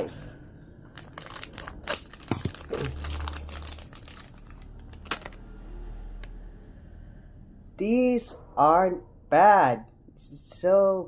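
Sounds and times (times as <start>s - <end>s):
plastic wrapper crinkling: 0.9s - 5.4s
sharp crackles of wrapper: 0.9s - 5.4s.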